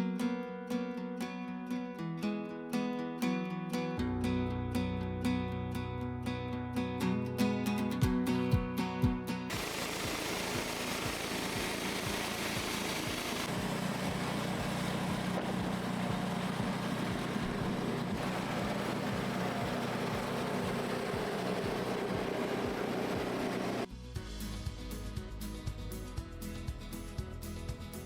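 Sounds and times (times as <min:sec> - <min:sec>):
small gasoline engine running: 0:09.5 - 0:23.9.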